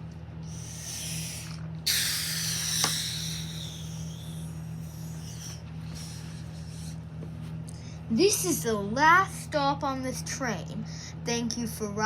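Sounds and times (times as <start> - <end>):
hiss of released air: 0.5 - 6.2.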